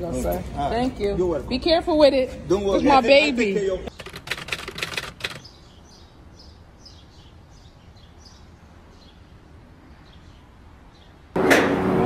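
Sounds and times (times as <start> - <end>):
small birds chirping: 3.9 - 11.4.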